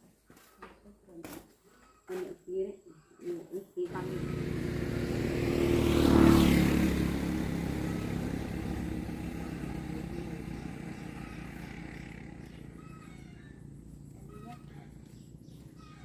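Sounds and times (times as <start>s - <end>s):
motorbike engine passing by: 3.9s - 16.0s.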